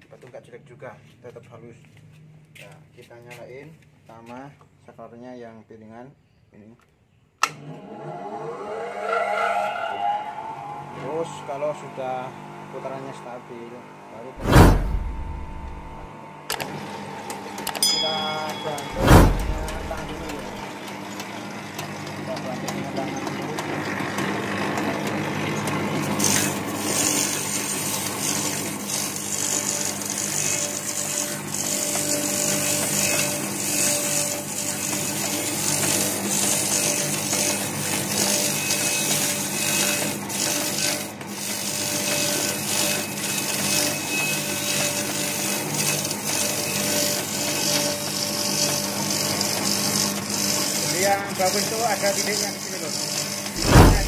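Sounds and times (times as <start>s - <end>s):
motor humming: 14.4s - 16.1s, 18.8s - 20.7s.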